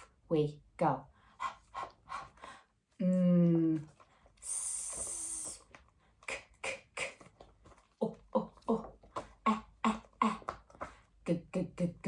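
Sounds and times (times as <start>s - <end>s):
woman making letter sounds: 3.0s - 12.0s.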